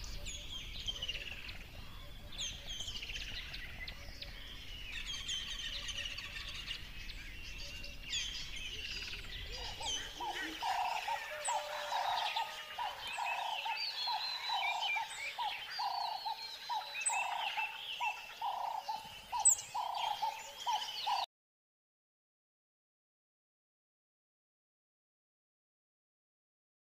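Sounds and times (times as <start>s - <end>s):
songbirds chirping and whistling: 0.0s - 21.3s.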